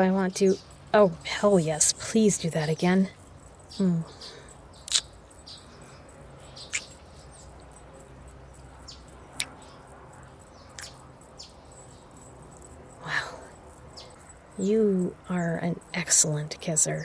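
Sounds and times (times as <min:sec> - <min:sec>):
birds: 0:00.0 - 0:17.0
insects: 0:00.0 - 0:17.0
kissing lip smacks: 0:04.9 - 0:05.1, 0:10.8 - 0:11.0.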